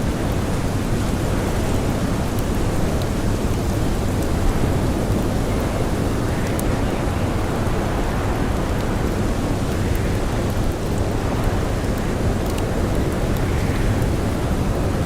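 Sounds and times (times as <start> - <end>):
campfire crackling: 0.0 - 15.0
snowstorm wind rushing: 3.3 - 15.0.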